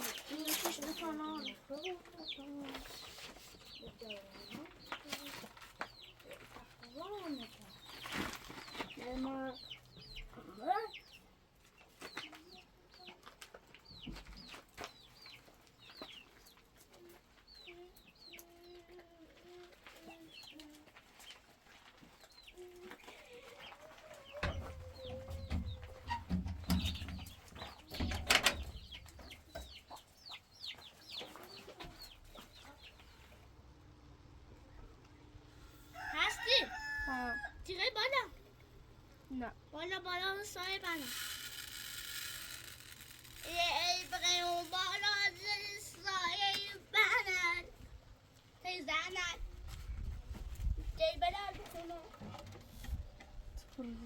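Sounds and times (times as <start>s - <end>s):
chicks peeping: 0.0s - 33.4s
hen clucking: 23.0s - 33.2s
thumps and knock: 24.4s - 29.7s.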